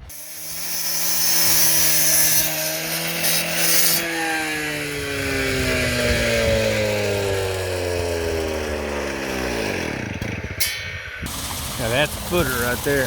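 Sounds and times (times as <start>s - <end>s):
motor winding down: 0.0s - 13.0s
power tool cutting hiss: 0.0s - 13.0s.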